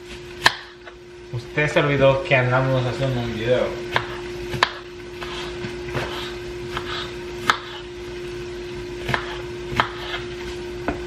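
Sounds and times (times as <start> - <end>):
knife chopping on cutting board: 0.4 - 0.9, 3.8 - 7.9, 9.0 - 10.3.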